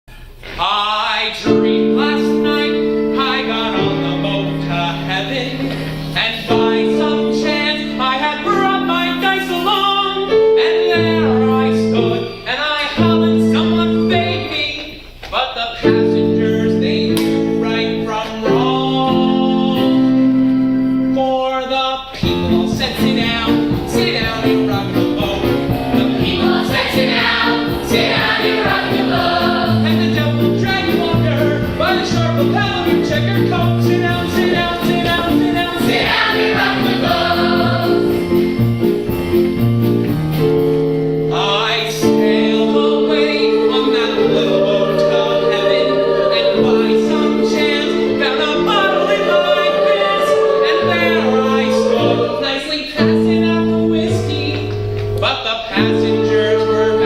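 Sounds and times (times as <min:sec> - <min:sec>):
instrumental accompaniment: 0:01.5 - 0:15.2, 0:15.8 - 0:57.0
chorus singing: 0:22.3 - 0:38.9, 0:41.3 - 0:54.4, 0:55.8 - 0:57.0.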